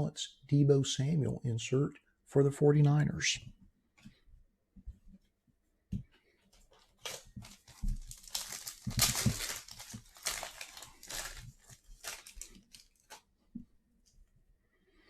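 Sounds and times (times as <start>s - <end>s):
plastic wrapper crinkling and tearing: 6.6s - 13.3s.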